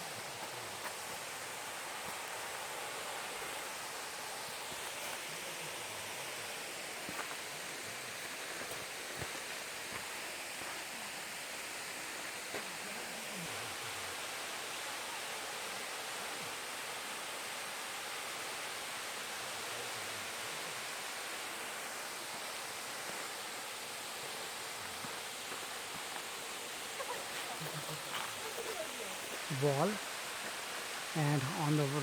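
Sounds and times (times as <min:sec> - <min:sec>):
waterfall and stream rushing: 0:00.0 - 0:32.0.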